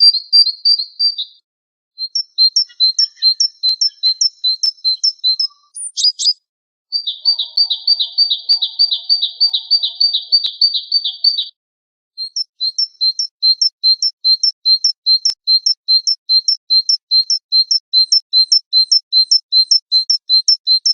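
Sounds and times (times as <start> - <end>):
songbird chirps and trills: 2.0 - 11.6, 12.2 - 20.9.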